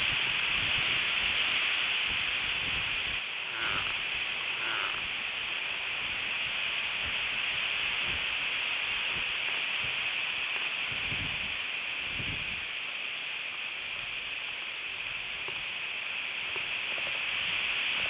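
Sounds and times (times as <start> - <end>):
gusts rumbling on microphone: 0.0 - 10.1, 10.7 - 12.8
wind hiss on microphone: 0.0 - 18.0.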